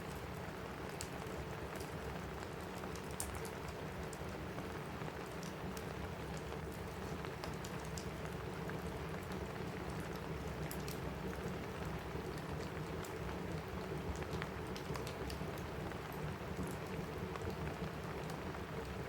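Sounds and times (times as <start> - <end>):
rain on a roof: 0.0 - 19.0
wood fire crackling: 0.0 - 19.0.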